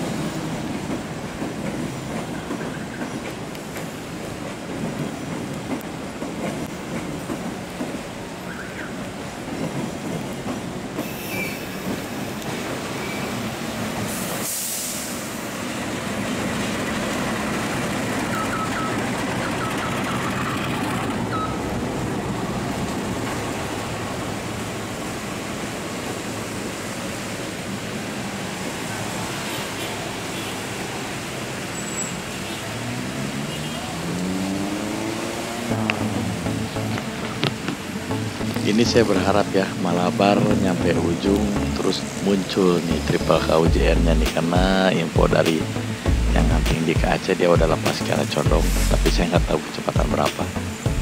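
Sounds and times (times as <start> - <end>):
passenger train rolling past: 0.0 - 51.0
faint high wheel squeals: 11.0 - 12.2, 12.9 - 13.4, 18.2 - 21.7, 31.7 - 32.7.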